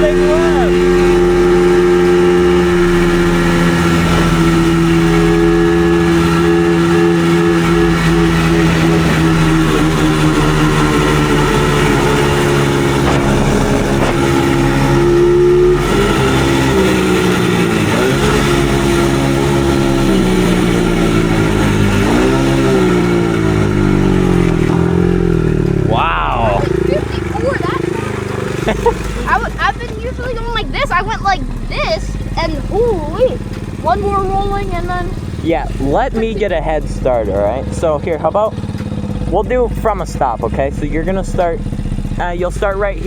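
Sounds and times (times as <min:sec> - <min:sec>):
dirt bike engine revving: 0:00.0 - 0:43.0.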